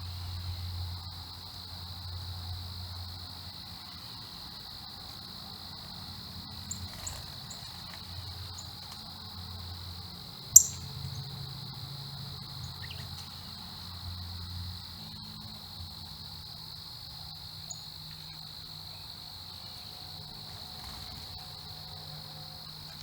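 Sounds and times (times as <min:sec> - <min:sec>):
insect chorus trilling: 0:00.0 - 0:23.0
short high bird chirps: 0:10.6 - 0:10.8.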